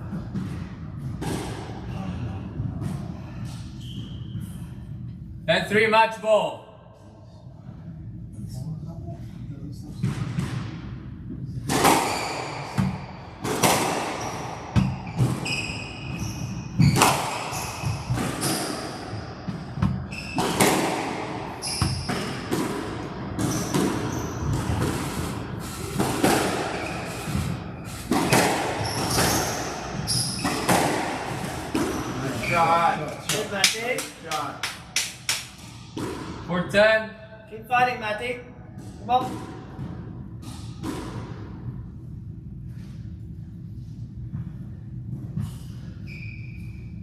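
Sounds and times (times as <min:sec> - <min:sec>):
squash ball hitting rackets and walls: 0:00.0 - 0:04.2, 0:10.0 - 0:36.6, 0:38.7 - 0:43.1
shoes squeaking on court floor: 0:03.6 - 0:04.6, 0:11.8 - 0:20.8, 0:21.5 - 0:22.6, 0:23.4 - 0:33.6, 0:45.6 - 0:47.0.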